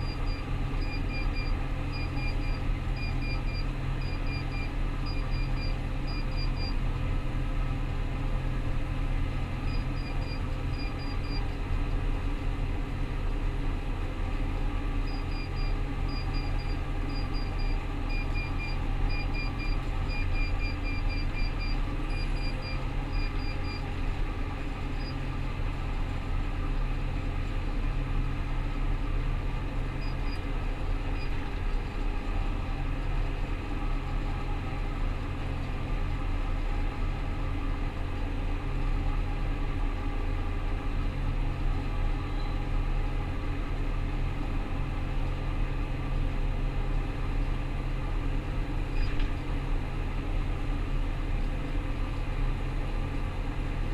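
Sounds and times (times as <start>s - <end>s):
combine harvester droning: 0.0s - 53.9s.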